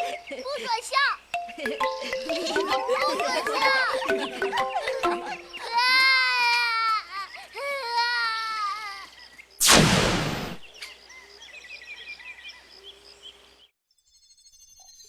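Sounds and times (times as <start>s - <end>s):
bird-like chirping: 0.0s - 0.6s, 1.2s - 6.0s
cartoon blast: 9.6s - 10.7s.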